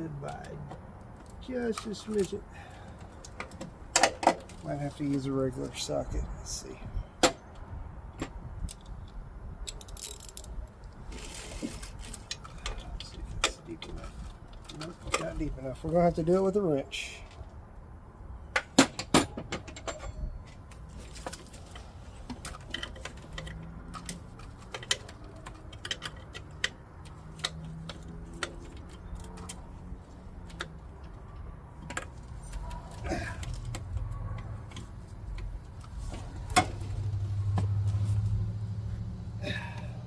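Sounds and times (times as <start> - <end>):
metal tools clinking on a nut: 9.7 - 10.6, 19.5 - 20.7, 22.5 - 29.6.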